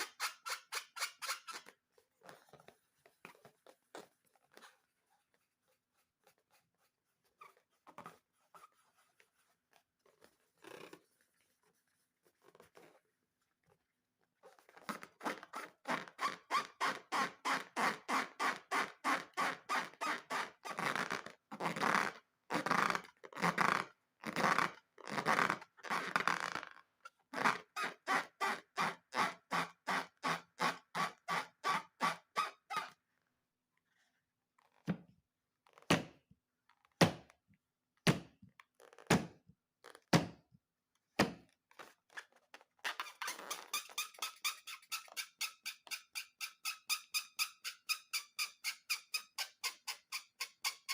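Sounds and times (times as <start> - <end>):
rubber balloons squeaking: 0.0 - 11.2, 14.4 - 33.0, 38.7 - 40.1, 41.7 - 50.9.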